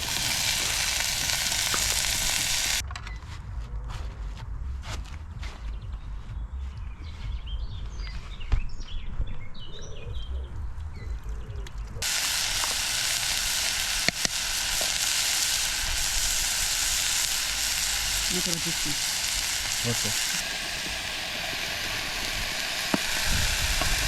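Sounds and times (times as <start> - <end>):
food sizzling in a pan: 0.0 - 2.8, 12.0 - 24.0.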